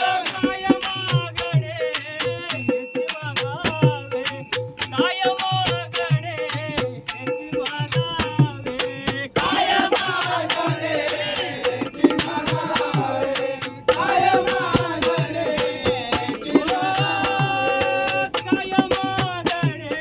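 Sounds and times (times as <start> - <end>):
jingling percussion beat: 0.0 - 20.0
chorus of voices singing: 8.8 - 20.0.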